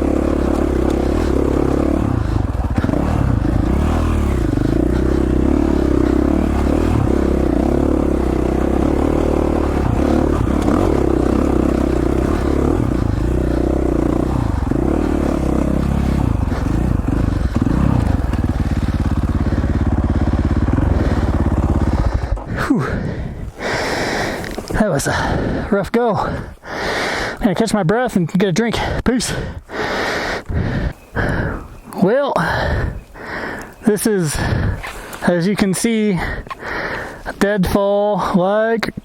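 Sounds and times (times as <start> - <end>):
dirt bike engine revving: 0.0 - 25.3.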